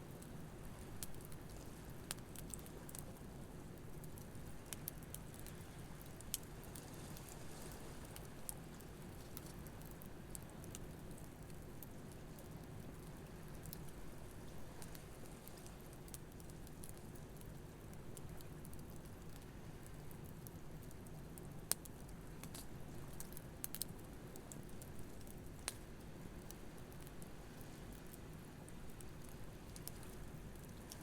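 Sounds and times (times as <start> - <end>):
campfire crackling and popping: 0.1 - 7.4, 8.0 - 31.0.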